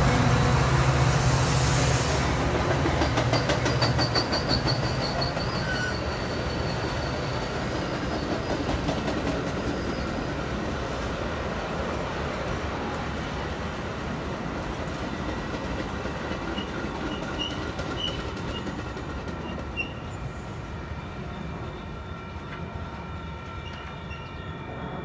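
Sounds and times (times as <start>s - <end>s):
locomotive engine hum: 0.0s - 4.6s
faint high wheel squeal: 3.3s - 8.7s, 19.4s - 20.6s, 21.2s - 25.0s.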